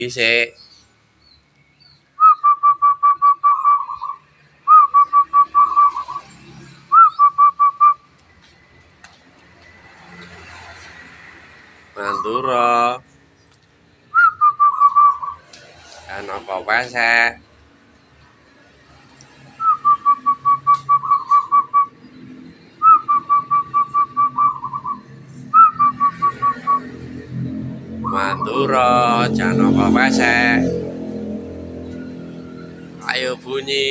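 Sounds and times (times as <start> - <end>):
dove cooing: 2.4 - 6.2, 22.8 - 25.0.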